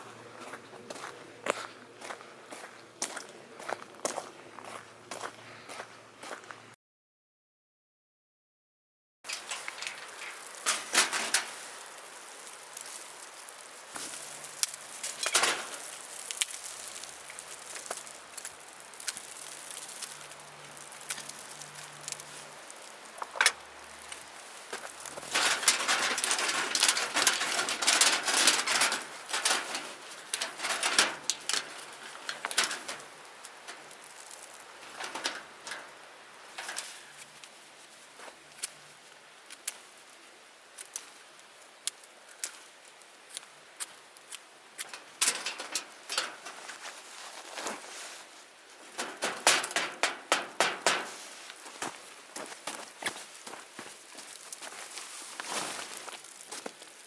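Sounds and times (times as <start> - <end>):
wood fire crackling: 9.3 - 57.0.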